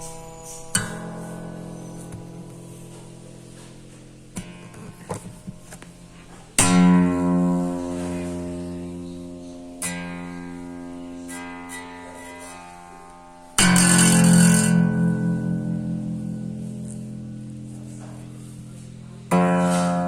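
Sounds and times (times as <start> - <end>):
acoustic guitar playing: 0.0 - 20.0.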